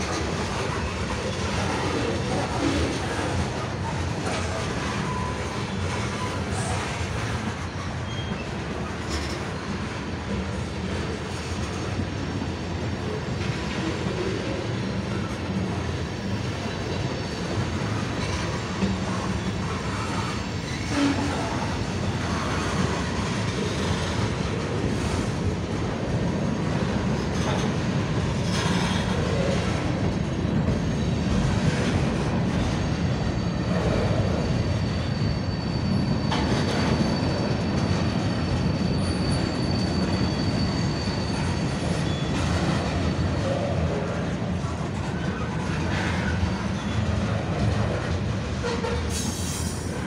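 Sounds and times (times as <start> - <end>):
steel wheels rumbling on rail: 0.0 - 50.0
high wheel squeal: 0.3 - 9.8, 13.9 - 25.5, 30.6 - 50.0.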